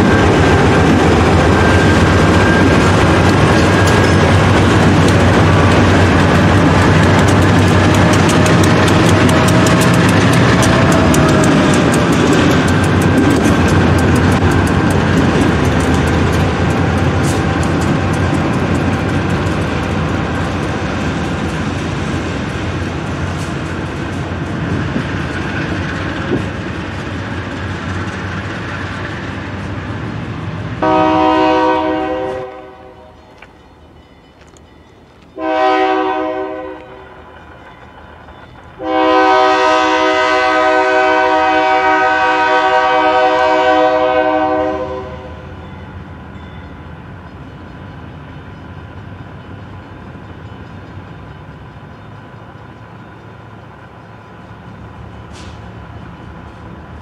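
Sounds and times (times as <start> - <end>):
freight train rumbling and rattling: 0.0 - 57.0
locomotive horn blasts: 30.8 - 33.1, 35.4 - 37.1, 38.8 - 45.4.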